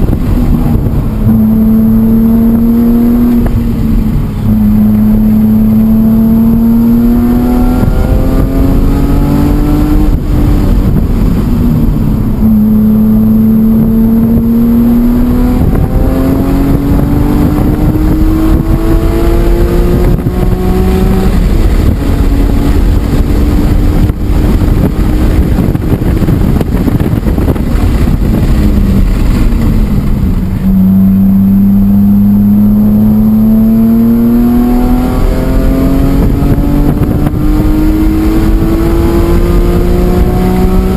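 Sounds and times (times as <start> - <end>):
car engine accelerating hard: 0.0 - 40.9.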